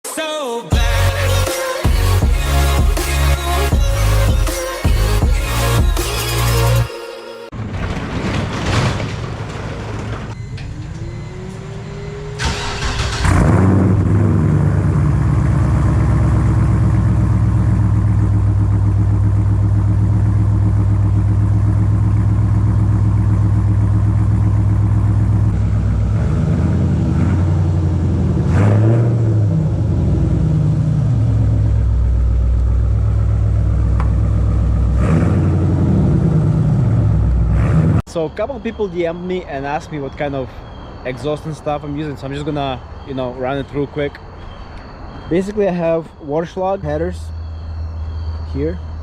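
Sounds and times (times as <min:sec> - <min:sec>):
car engine idling loudly: 0:12.4 - 0:28.2.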